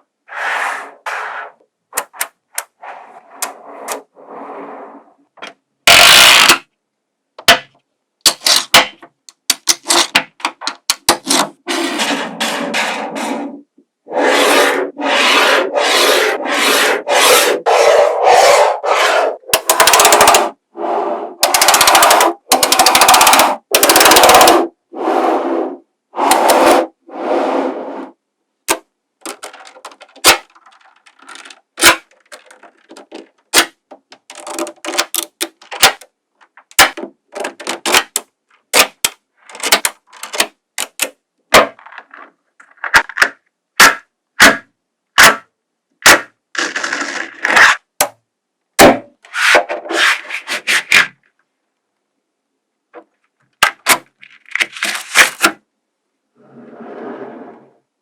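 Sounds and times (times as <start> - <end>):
magnetic balls clicking together: 19.6 - 20.6, 21.4 - 24.5.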